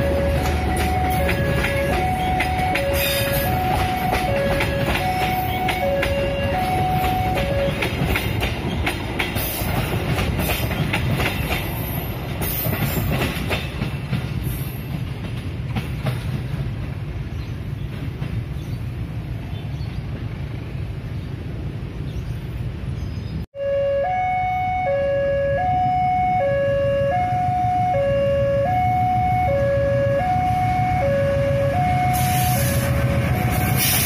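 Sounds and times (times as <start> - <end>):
train wheels clicking over rail joints: 0.0 - 19.0
passing train rumble: 0.0 - 34.0.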